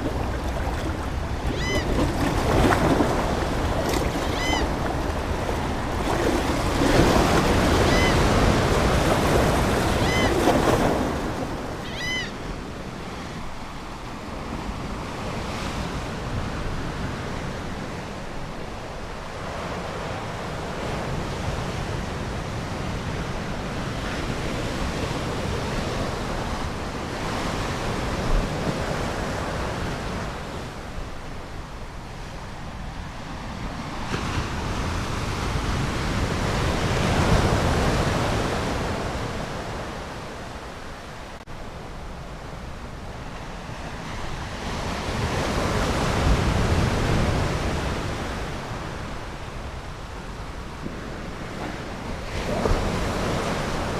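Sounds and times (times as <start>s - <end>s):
seagull calling: 0.0s - 6.3s, 7.5s - 12.4s
ocean waves washing onto shore: 0.0s - 53.9s.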